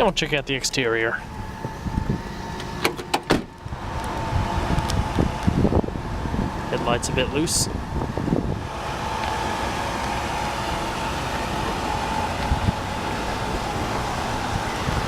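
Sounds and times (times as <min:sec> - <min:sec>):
car engine idling: 0:00.0 - 0:15.0
high engine whine: 0:00.0 - 0:15.0.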